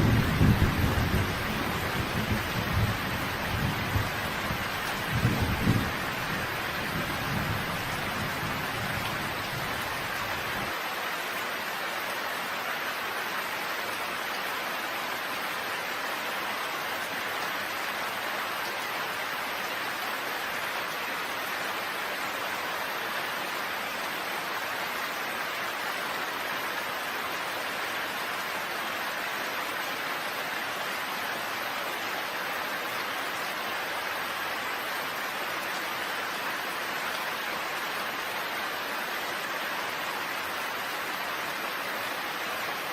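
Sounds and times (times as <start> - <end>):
low thunder rumble: 0.0 - 4.2
steady rain falling: 0.0 - 42.9.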